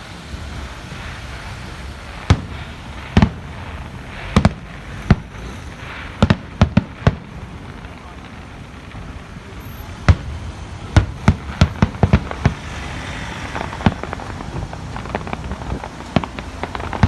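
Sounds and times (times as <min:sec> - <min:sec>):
firework shells bursting: 0:00.3 - 0:08.3, 0:09.8 - 0:17.0
low background rumble: 0:10.2 - 0:17.0.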